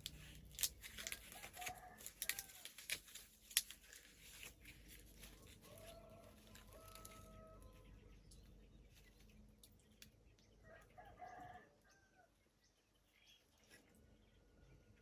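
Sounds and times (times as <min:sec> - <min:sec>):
faint rooster crowing: 0:01.1 - 0:02.8, 0:05.3 - 0:08.4, 0:10.6 - 0:12.4.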